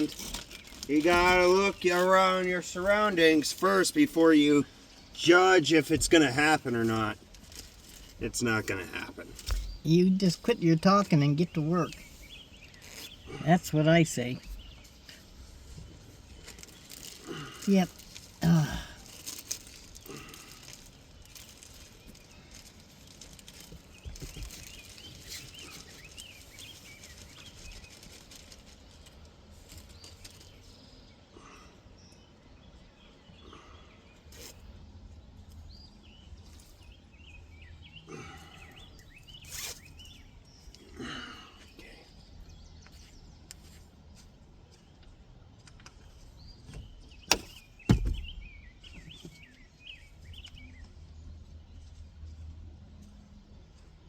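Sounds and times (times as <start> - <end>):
small birds chirping: 0.0 - 54.0
sharp knocks: 47.3 - 48.4.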